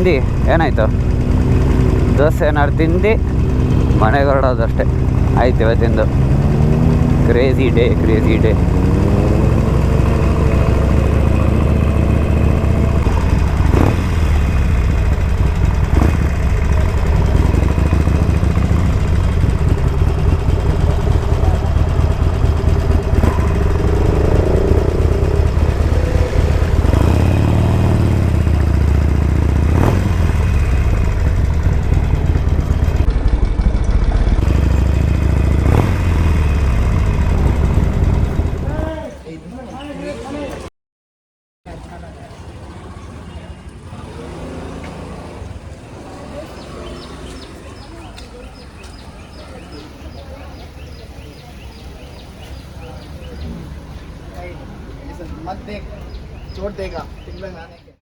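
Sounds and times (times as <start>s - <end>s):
motorcycle engine running: 0.0s - 39.2s, 42.4s - 57.4s.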